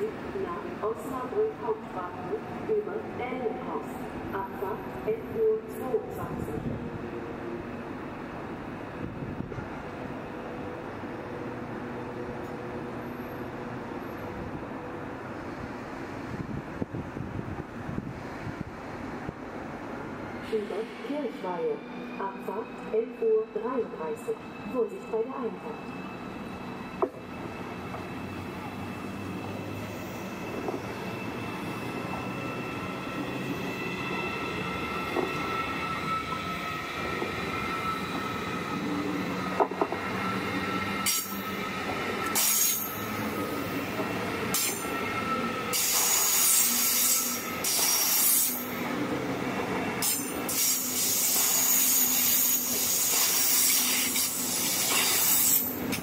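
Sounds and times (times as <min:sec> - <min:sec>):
train drive whining: 0:00.0 - 0:56.0
train wheels and brakes squealing: 0:20.2 - 0:56.0.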